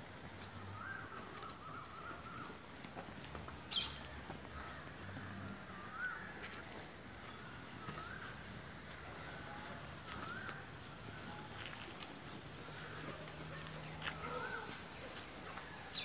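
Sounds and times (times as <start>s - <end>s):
crow-like birds calling: 0.7s - 2.6s, 3.7s - 6.6s.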